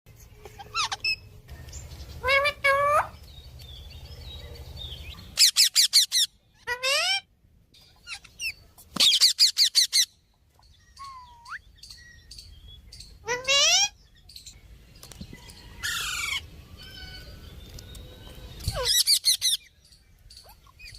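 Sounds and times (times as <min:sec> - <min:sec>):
parakeet and myna squawking: 0:00.4 - 0:01.4, 0:02.2 - 0:03.3, 0:05.2 - 0:07.3, 0:13.2 - 0:14.0.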